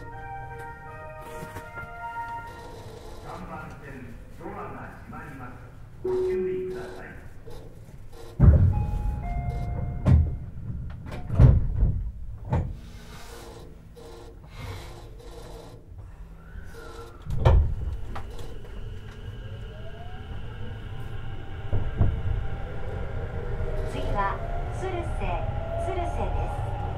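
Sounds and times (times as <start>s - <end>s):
train doors thudding: 6.1s - 15.2s, 16.8s - 19.3s, 21.5s - 23.0s
electric train motor whine: 12.8s - 26.9s.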